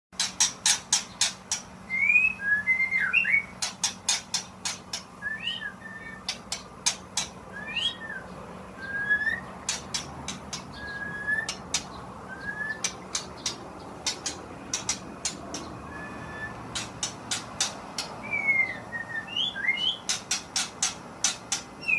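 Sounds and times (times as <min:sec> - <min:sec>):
bird whistled notes: 0:01.9 - 0:04.3, 0:04.9 - 0:06.4, 0:07.5 - 0:13.6, 0:15.6 - 0:16.9, 0:18.2 - 0:20.7
bird clicking notes: 0:11.4 - 0:15.9.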